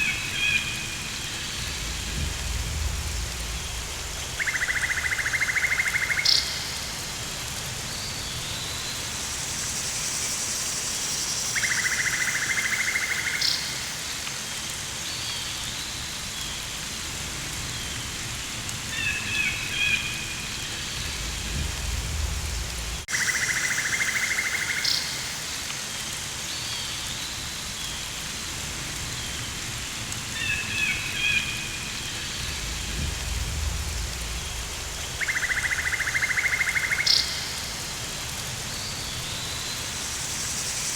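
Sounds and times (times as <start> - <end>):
rain-like hiss: 0.0 - 40.9
low rumble: 1.0 - 4.4, 20.9 - 23.1, 32.3 - 35.2.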